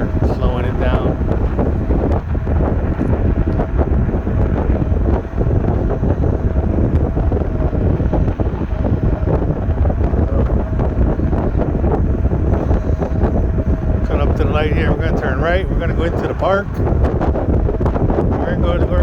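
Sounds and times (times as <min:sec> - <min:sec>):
faint steady whine: 0:00.0 - 0:19.0
wind buffeting microphone: 0:00.0 - 0:19.0.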